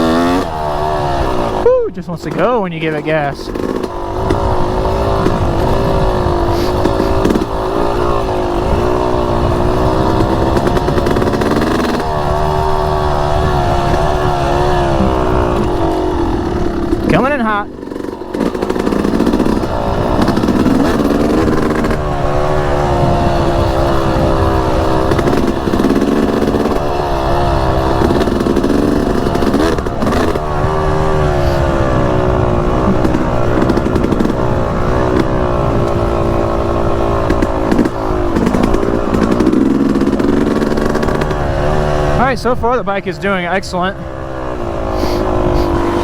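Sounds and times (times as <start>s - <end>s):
dirt bike engine revving: 0.0s - 46.0s.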